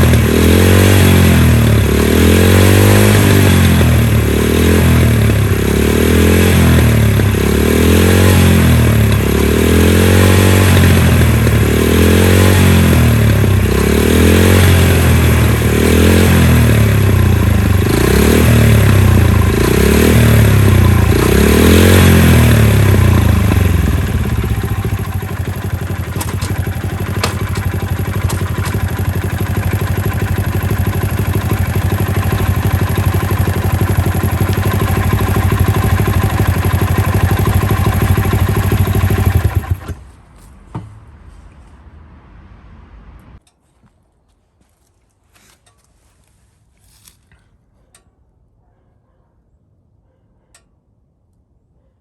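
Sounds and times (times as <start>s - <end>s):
small engine blipped and idling: 0.0s - 40.2s.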